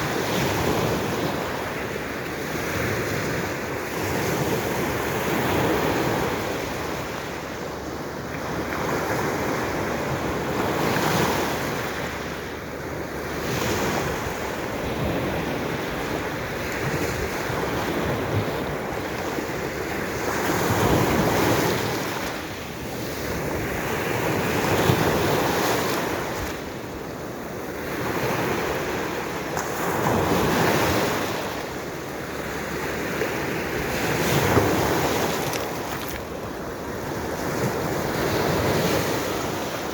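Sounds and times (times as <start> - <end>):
waves breaking on shore: 0.0 - 39.9
wind on microphone: 0.0 - 39.9.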